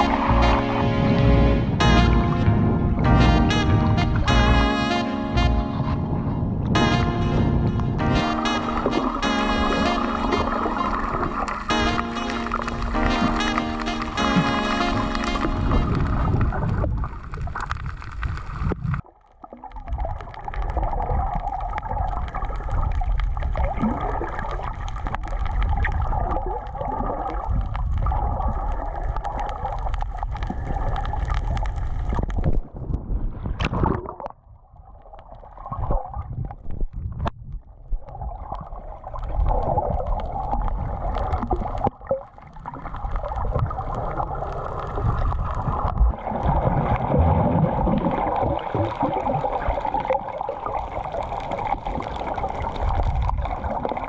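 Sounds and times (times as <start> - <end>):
steady drone: 0.0 - 16.4
water gurgling and rushing: 0.0 - 54.0.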